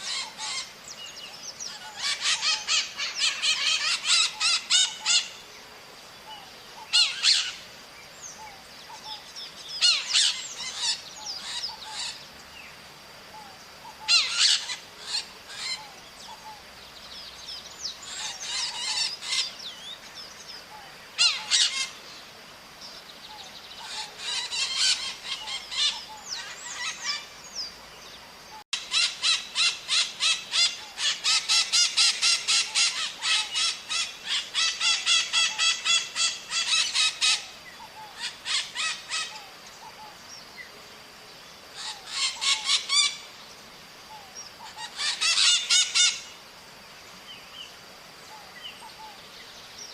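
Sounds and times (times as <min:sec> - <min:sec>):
parrots calling: 0:00.0 - 0:00.8, 0:01.7 - 0:05.4, 0:06.8 - 0:07.6, 0:09.8 - 0:12.2, 0:13.8 - 0:16.6, 0:18.1 - 0:19.6, 0:21.2 - 0:22.0, 0:23.8 - 0:27.3, 0:28.8 - 0:40.1, 0:41.8 - 0:43.3, 0:44.6 - 0:46.4.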